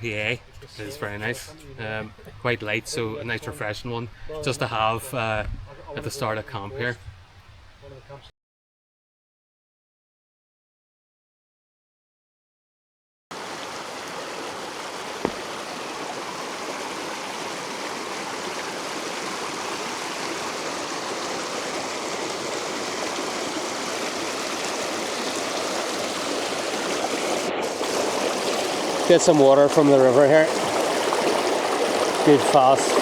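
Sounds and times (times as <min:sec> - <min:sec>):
river rushing: 0:13.3 - 0:33.0.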